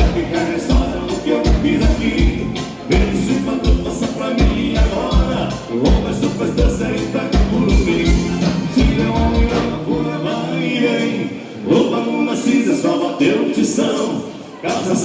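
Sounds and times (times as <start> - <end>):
kick drum beat: 0.0 - 9.6
accordion-led dance band music: 0.0 - 15.0
person singing: 0.0 - 15.0.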